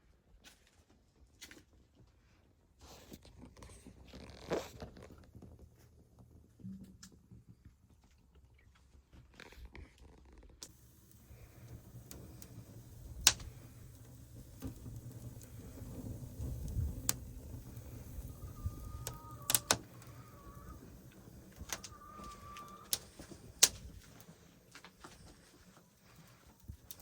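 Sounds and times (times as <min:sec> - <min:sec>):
wood fire cracking and snapping: 0:10.6 - 0:27.0.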